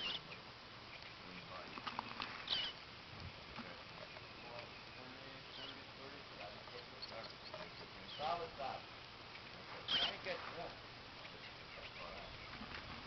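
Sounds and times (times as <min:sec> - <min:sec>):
bluebirds chirping: 0:00.0 - 0:13.0.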